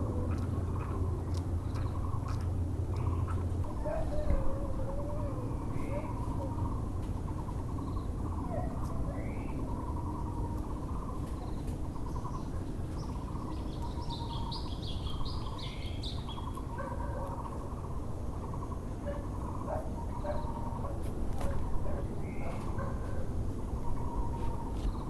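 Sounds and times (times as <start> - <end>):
barbet hollow repeated calls: 0.0 - 24.8
low background hum: 0.0 - 25.0
small bird high chirps: 7.4 - 17.7.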